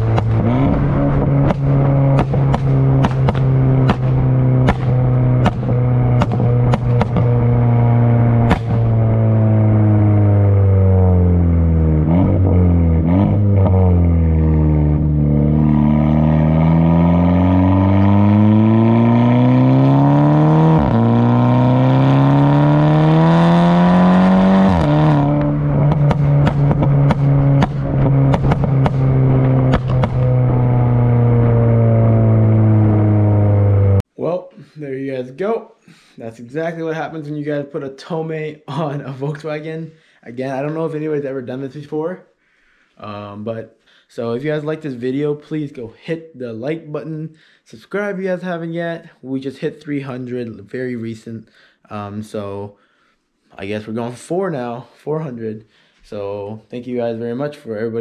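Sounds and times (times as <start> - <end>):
car engine revving: 0.0 - 34.1
exhaust cracks: 0.0 - 34.1.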